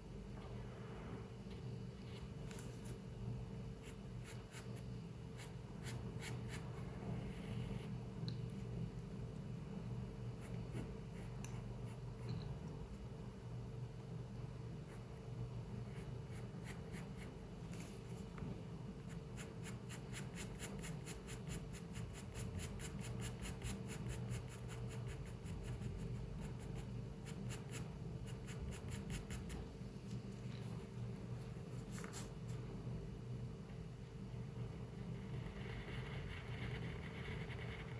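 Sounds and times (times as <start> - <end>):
low room hum: 0.0 - 37.9
pencil scratching on paper: 3.8 - 7.9, 15.8 - 17.9, 19.0 - 29.6, 35.1 - 37.9.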